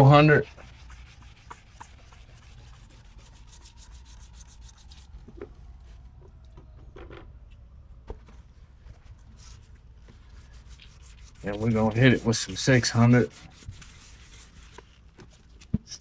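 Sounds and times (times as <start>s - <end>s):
sandpaper rubbing on plastic: 0.0s - 5.3s, 9.4s - 16.0s.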